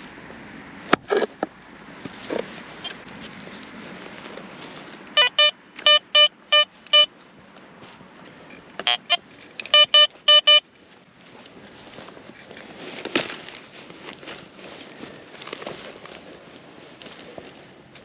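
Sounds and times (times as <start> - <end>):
metal detector beeps: 5.2 - 7.1, 8.8 - 10.6.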